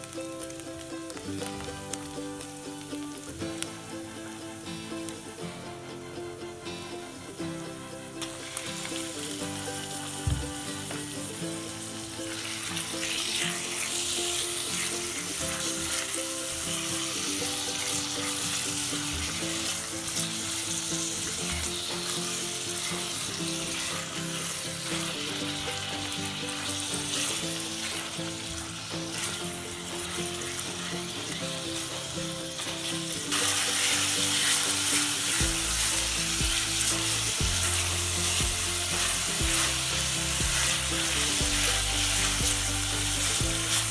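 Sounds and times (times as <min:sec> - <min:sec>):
meat and onions sizzling in oil: 0:00.0 - 0:43.9
spatula stirring in saucepan: 0:12.0 - 0:43.9.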